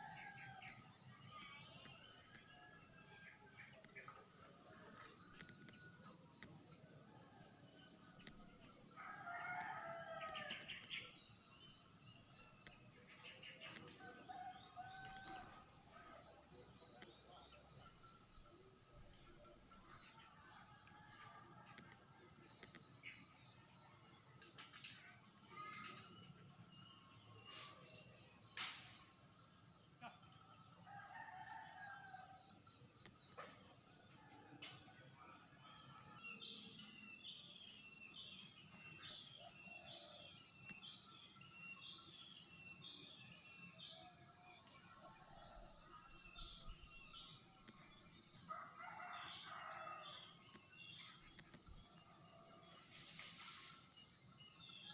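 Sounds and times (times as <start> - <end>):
high insect drone: 0.0 - 54.9.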